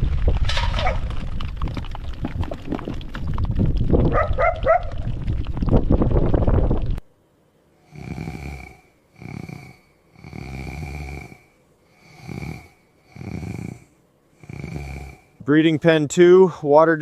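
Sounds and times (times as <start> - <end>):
person snoring: 7.8 - 15.4.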